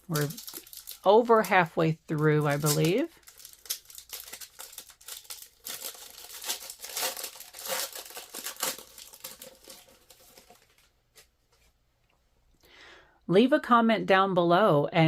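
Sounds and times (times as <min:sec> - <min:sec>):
wrapper crinkling: 0:00.0 - 0:11.3.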